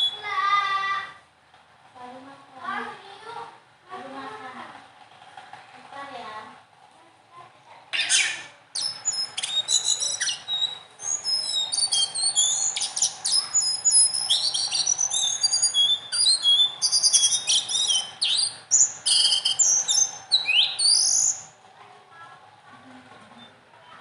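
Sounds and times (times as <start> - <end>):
songbird chirping and trilling: 0.0 - 0.9, 7.9 - 21.6.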